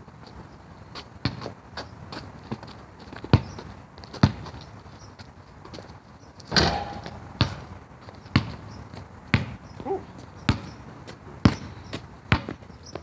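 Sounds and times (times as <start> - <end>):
basketball bouncing: 6.5 - 8.6, 9.3 - 9.6.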